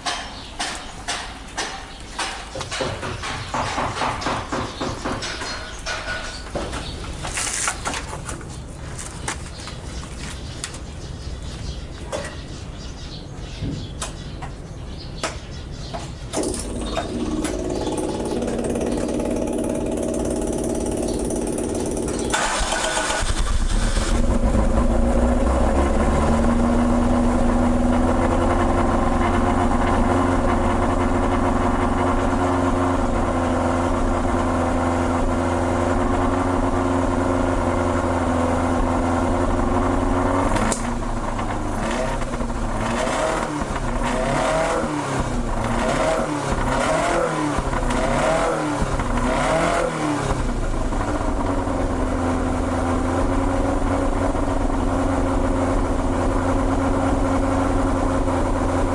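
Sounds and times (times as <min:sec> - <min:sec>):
engine revving: 0:16.3 - 0:58.9
car engine idling: 0:16.4 - 0:58.9.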